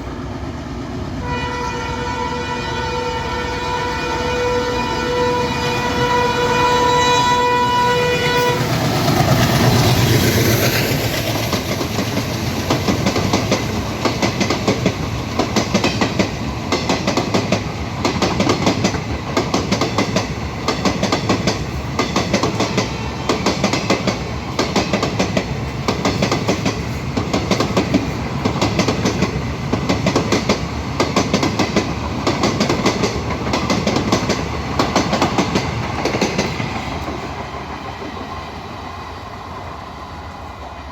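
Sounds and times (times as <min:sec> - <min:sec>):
locomotive horn: 0:01.2 - 0:08.8
train wheels clacking over rail joints: 0:08.6 - 0:37.4.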